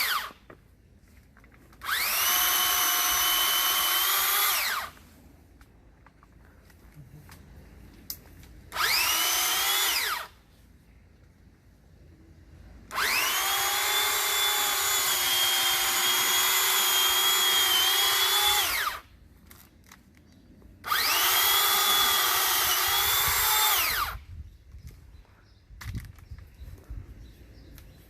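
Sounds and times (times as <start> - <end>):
pole saw motor whining: 0.0 - 0.4, 1.8 - 5.0, 8.7 - 10.3, 12.9 - 19.1, 20.8 - 24.2.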